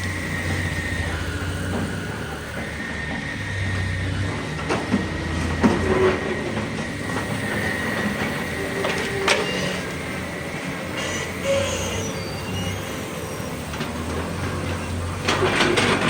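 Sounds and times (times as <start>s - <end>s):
excavator engine drone: 0.0s - 16.0s.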